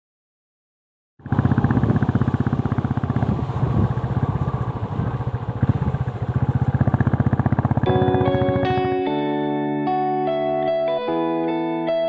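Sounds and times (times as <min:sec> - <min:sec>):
vehicle engine running: 0:01.2 - 0:09.0.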